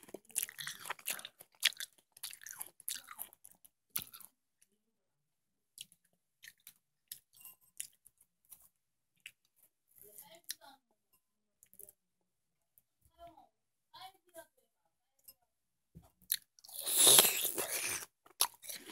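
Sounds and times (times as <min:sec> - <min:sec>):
crunching and chewing watermelon: 0:00.0 - 0:04.3, 0:16.2 - 0:18.9.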